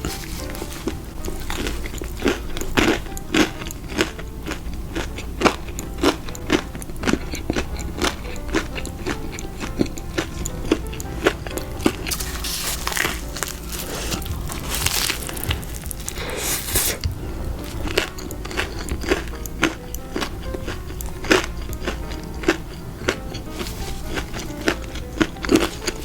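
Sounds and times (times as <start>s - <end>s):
rustling: 0.0s - 3.8s, 11.1s - 18.5s, 22.0s - 26.0s
crunching and chewing fried food: 0.0s - 26.0s
soft background music: 0.0s - 26.0s.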